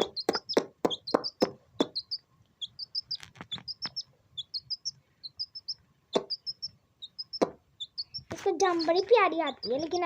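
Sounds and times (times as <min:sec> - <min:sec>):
sharp taps: 0:00.0 - 0:02.1, 0:06.2 - 0:06.4, 0:07.3 - 0:07.6
chick peeping: 0:00.0 - 0:10.0.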